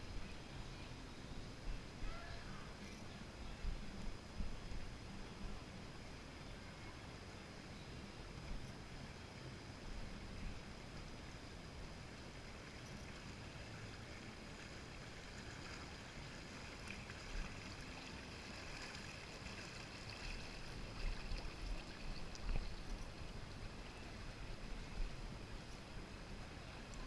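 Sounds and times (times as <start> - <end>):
water flowing and lapping: 8.4 - 27.0.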